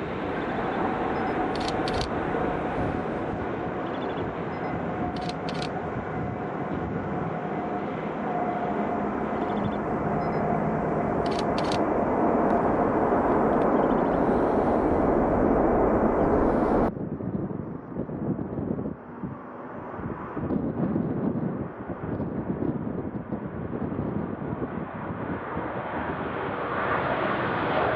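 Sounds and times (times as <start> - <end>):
wind noise on microphone: 0.0 - 7.7, 9.1 - 27.9
jet engine roar: 0.0 - 17.8, 21.4 - 27.9
sharp clicks: 1.5 - 2.1, 5.2 - 5.7, 11.2 - 11.8.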